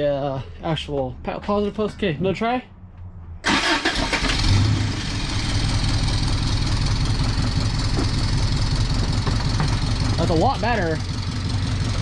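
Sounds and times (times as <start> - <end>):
engine starting and idling: 3.4 - 12.0.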